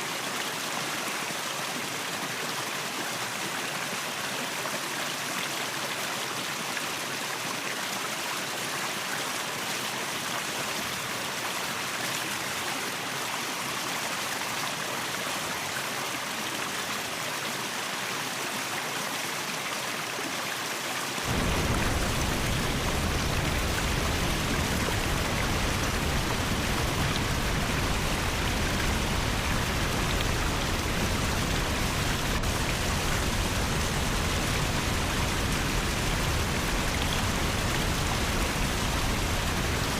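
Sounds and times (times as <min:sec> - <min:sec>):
waterfall rushing: 0:21.2 - 0:39.9.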